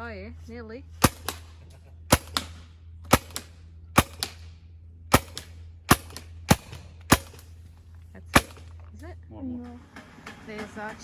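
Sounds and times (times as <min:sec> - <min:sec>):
steady low hum: 0:00.0 - 0:11.0
gun shots: 0:01.0 - 0:04.5, 0:05.1 - 0:07.6, 0:08.3 - 0:08.8.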